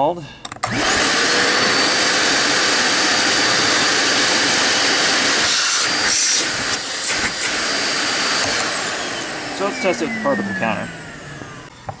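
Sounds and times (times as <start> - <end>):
vacuum cleaner motor running: 0.6 - 12.0.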